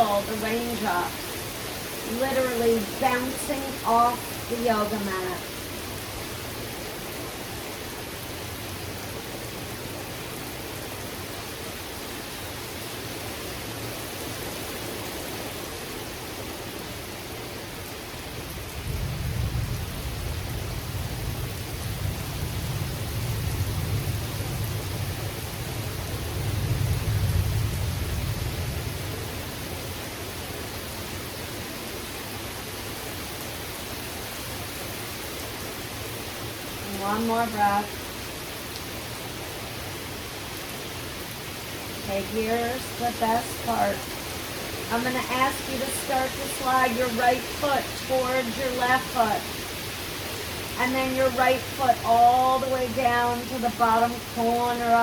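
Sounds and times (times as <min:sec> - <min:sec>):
steady rain falling: 0:00.0 - 0:55.0
low rumble of thunder: 0:18.5 - 0:30.0.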